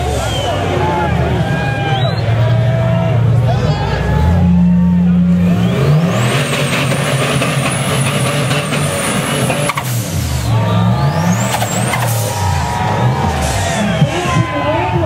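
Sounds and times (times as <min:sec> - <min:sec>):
engine revving under load: 0:02.3 - 0:14.2.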